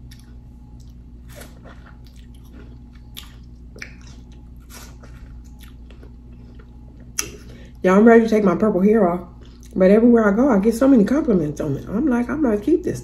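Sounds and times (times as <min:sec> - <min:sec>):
person chewing watermelon: 0:00.0 - 0:07.6, 0:09.4 - 0:09.8.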